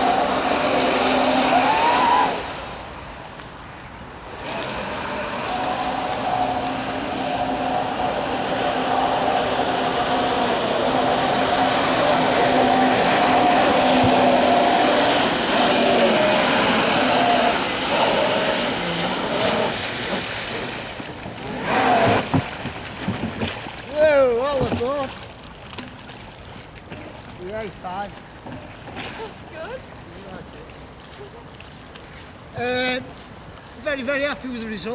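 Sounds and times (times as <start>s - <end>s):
electric motor whine: 0.0s - 2.6s, 4.3s - 20.2s
water rushing: 0.0s - 3.4s, 4.1s - 30.9s.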